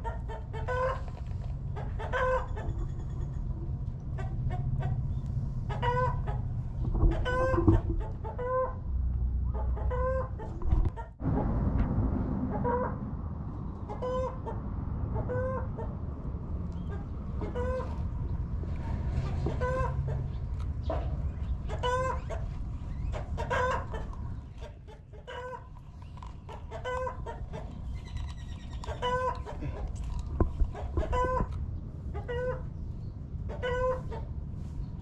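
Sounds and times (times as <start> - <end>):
chicken clucking: 0.0 - 8.8, 9.4 - 11.2, 13.8 - 14.6, 15.2 - 16.0, 16.7 - 32.8, 33.4 - 34.9
steady low rumble: 0.0 - 35.0.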